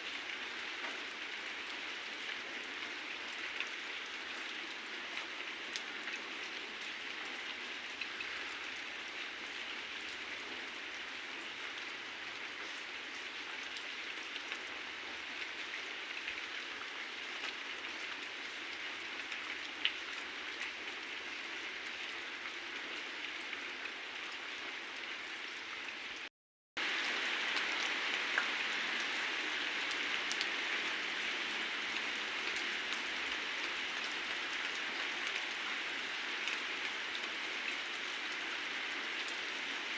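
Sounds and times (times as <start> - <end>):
heavy rain falling: 26.8 - 39.9.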